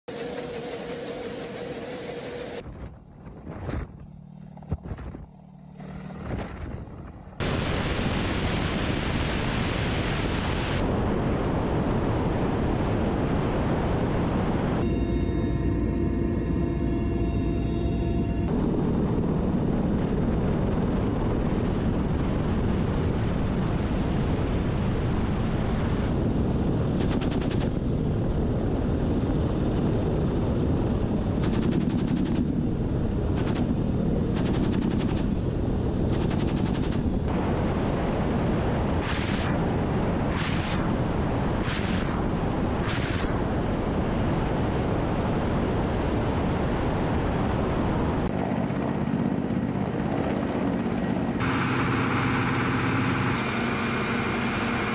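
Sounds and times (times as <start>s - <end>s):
helicopter noise: 0.1s - 8.3s, 14.8s - 23.2s, 26.1s - 37.4s, 48.2s - 54.9s
rapid gunfire: 33.4s - 35.4s, 36.1s - 37.1s.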